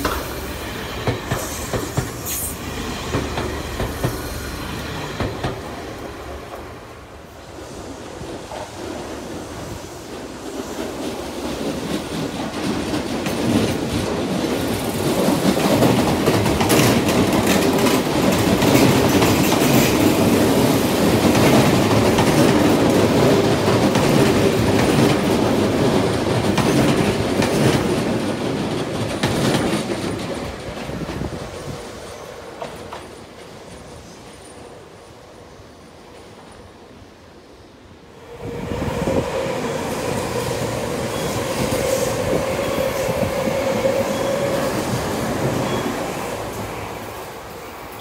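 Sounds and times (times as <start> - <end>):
electric train passing: 0.0 - 48.0
wheels clacking over rail joints: 10.5 - 20.4, 21.2 - 31.4.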